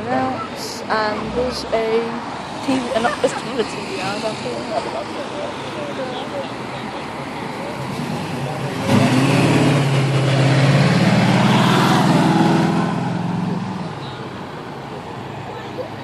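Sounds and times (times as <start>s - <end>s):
car engine revving past: 7.7s - 13.8s.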